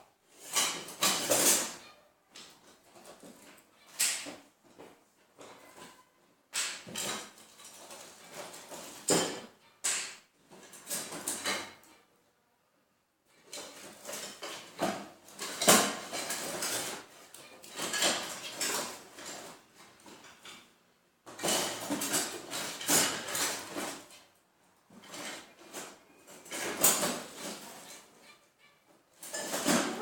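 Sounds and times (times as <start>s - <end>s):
small hard objects clattering: 13.5s - 20.7s.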